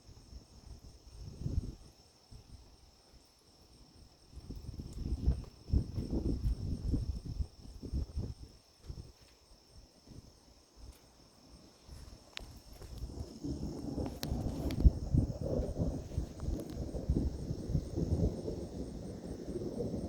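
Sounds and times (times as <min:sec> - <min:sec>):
insects humming: 0:00.0 - 0:20.0
thunder rumbling: 0:13.0 - 0:20.0.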